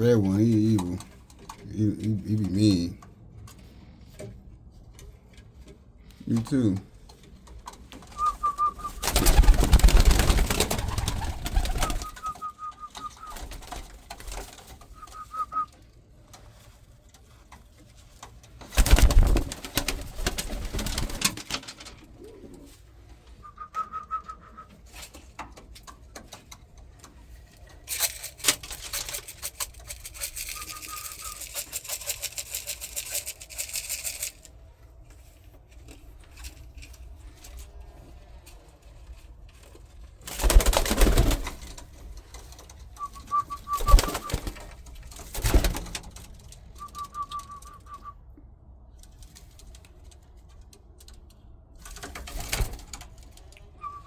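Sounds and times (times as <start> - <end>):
wings rustling: 7.7 - 15.7, 18.6 - 23.1, 27.8 - 34.5, 40.3 - 46.2
pigeons cooing: 8.2 - 13.6, 22.0 - 24.5.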